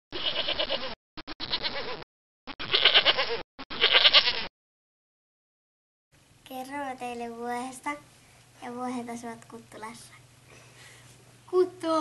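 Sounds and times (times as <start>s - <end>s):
goat bleating: 0.2s - 0.9s, 2.6s - 4.5s.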